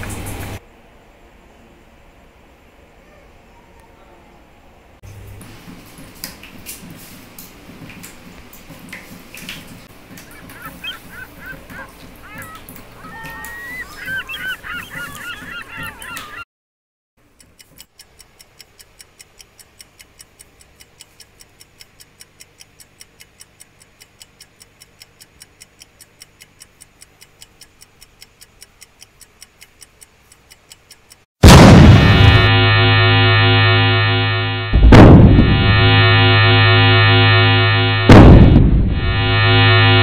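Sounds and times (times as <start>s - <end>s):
wavering honk-like calls: 10.2s - 16.4s
fast steady ticking: 17.2s - 31.2s
loud music: 31.9s - 40.0s.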